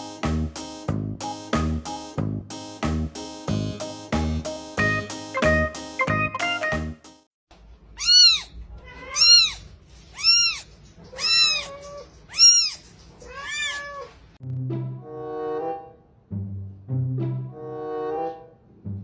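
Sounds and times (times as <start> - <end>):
cat meowing: 8.0 - 14.2.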